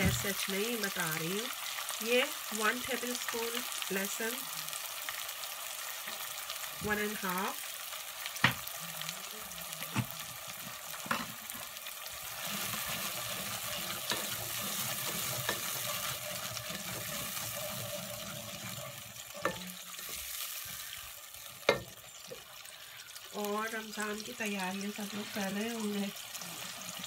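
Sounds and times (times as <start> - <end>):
food sizzling in a pot: 0.0 - 27.0
spoon stirring in a pot: 9.9 - 22.6.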